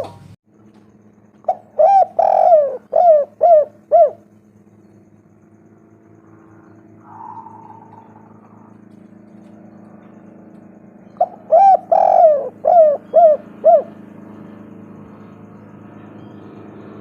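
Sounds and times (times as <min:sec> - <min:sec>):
dove cooing: 0:00.0 - 0:00.4, 0:01.4 - 0:04.4, 0:06.4 - 0:10.4, 0:11.0 - 0:16.7
faint steady hum: 0:00.0 - 0:17.0.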